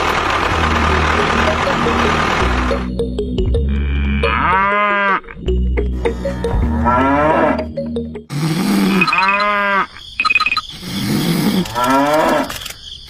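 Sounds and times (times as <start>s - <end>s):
background music: 0.5s - 8.3s
cows mooing: 3.6s - 10.0s, 11.3s - 12.5s.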